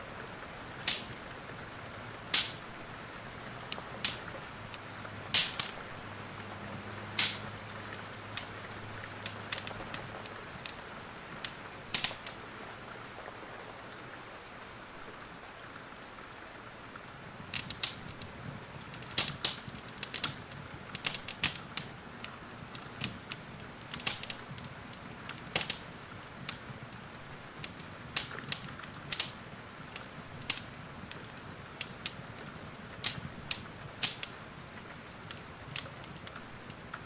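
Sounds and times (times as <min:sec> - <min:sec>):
rain hiss: 0:00.0 - 0:37.0
wood fire pops and crackles: 0:00.8 - 0:01.2, 0:02.3 - 0:02.8, 0:03.4 - 0:06.0, 0:07.0 - 0:12.4, 0:17.4 - 0:37.0.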